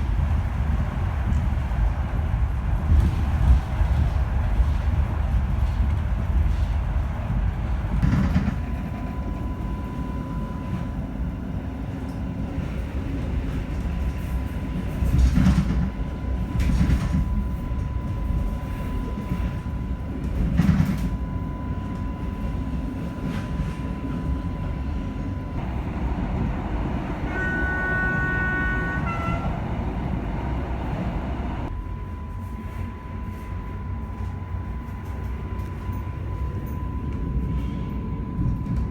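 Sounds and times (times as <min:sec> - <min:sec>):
train running rumble and whine: 0:00.0 - 0:38.9
train horn: 0:27.0 - 0:30.3.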